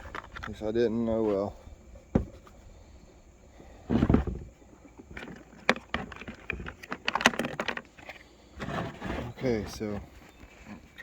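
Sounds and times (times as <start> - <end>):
dull thump of plastic: 2.1 - 2.5, 3.9 - 4.5.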